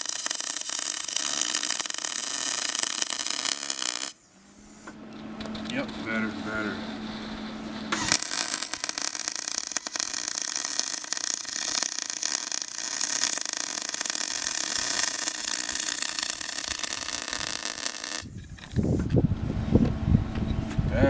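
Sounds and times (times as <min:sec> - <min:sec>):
welding arc crackling: 0:00.0 - 0:04.2, 0:08.0 - 0:18.3.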